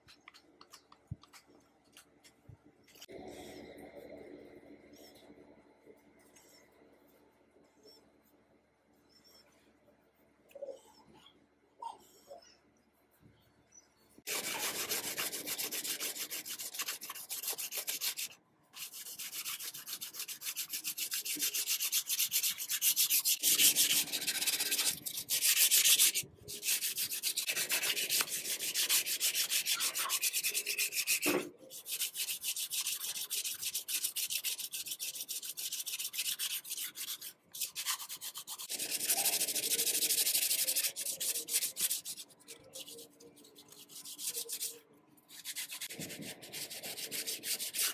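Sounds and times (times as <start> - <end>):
sandpaper scraping metal: 14.3 - 47.9.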